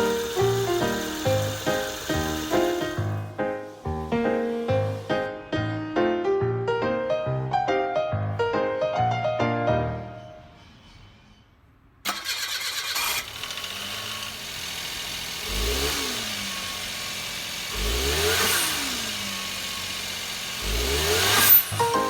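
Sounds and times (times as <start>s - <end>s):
car engine starting and revving: 0.0s - 3.3s, 12.1s - 22.0s.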